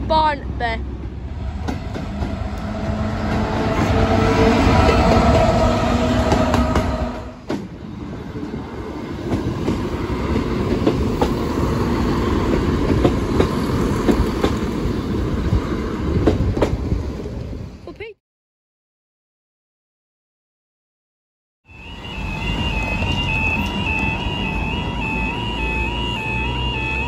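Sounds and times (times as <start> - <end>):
train engine: 0.0 - 17.8, 21.7 - 27.0
train wheels rumbling: 0.1 - 17.8, 21.8 - 27.0.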